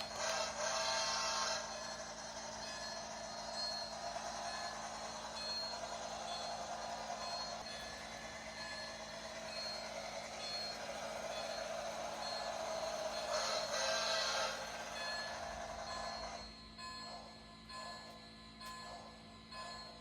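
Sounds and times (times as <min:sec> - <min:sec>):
model train motor whirring: 0:00.0 - 0:20.0
steam hiss: 0:13.3 - 0:14.9.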